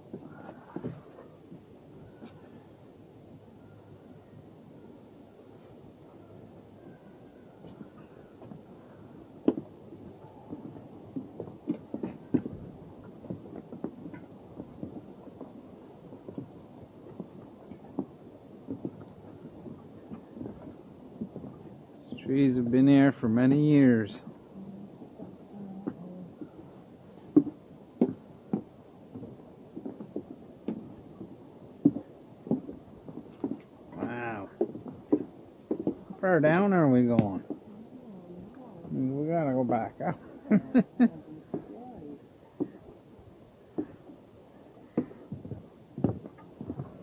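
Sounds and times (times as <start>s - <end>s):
footsteps on a trail: 0.0s - 2.6s, 7.5s - 23.1s, 24.2s - 37.7s, 39.9s - 41.8s, 42.5s - 43.1s, 43.7s - 44.2s, 44.8s - 47.0s
footsteps crunching on trail: 7.6s - 22.1s.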